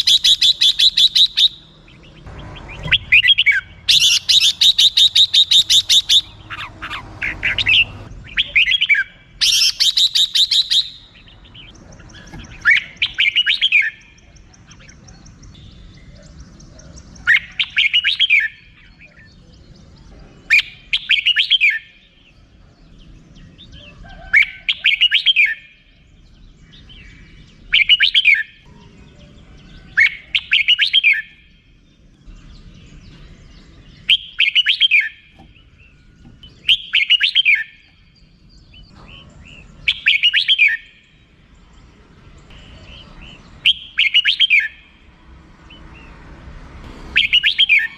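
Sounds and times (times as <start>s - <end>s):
bird chattering call: 0.0s - 19.3s, 36.4s - 38.1s, 47.1s - 47.9s.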